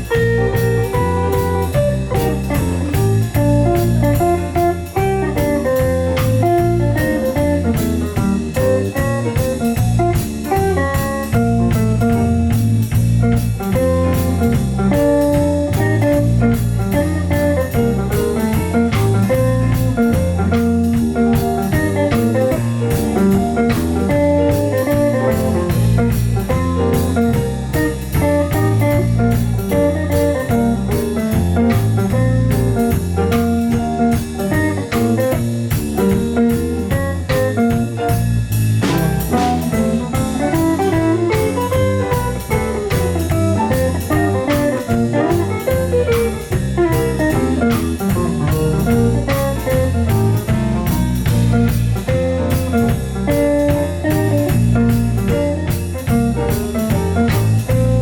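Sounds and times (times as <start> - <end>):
guitar: 0.0 - 58.0
instrumental band music: 0.0 - 58.0.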